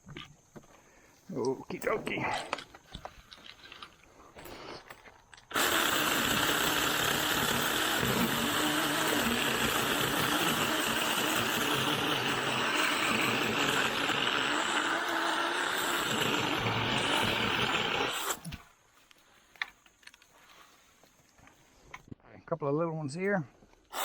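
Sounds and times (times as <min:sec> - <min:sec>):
mini chainsaw running: 0:05.5 - 0:18.5.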